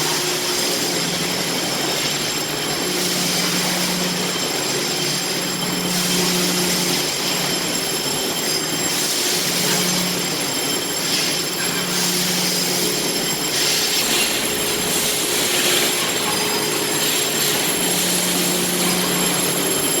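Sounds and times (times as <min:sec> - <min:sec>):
floor scrubber whir and hiss: 0:11.0 - 0:20.0.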